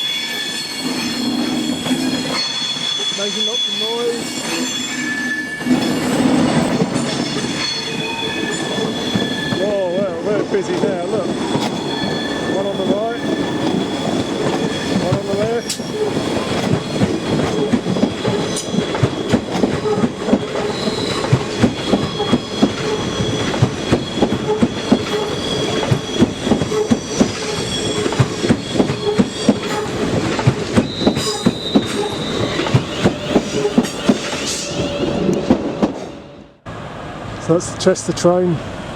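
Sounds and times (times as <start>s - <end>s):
high-pitched wheel flange squeal: 0.0s - 36.5s
train wheels clattering over rail joints: 5.6s - 36.2s.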